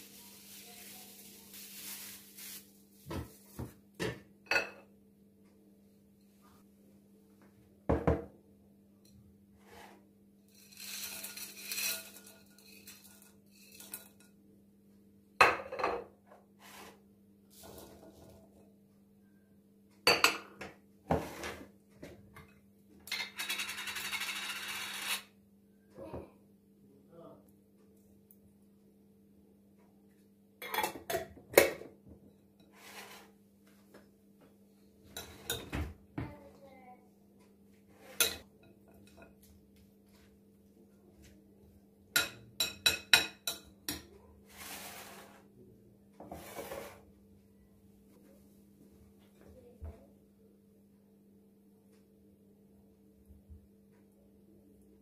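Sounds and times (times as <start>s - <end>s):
dishes and cutlery clinking: 4.0s - 4.9s, 10.6s - 14.4s, 30.6s - 31.9s, 35.1s - 35.9s, 38.1s - 39.5s, 42.2s - 44.1s.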